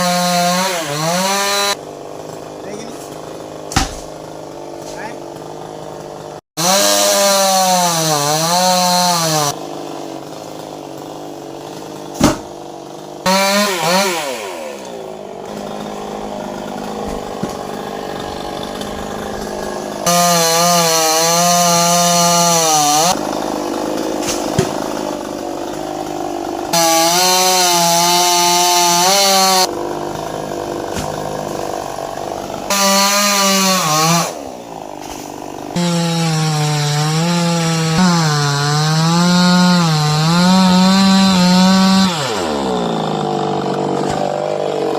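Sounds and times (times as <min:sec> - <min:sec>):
chainsaw cutting wood: 0:00.0 - 0:44.9
sharp knock: 0:03.7 - 0:04.1, 0:12.2 - 0:12.5.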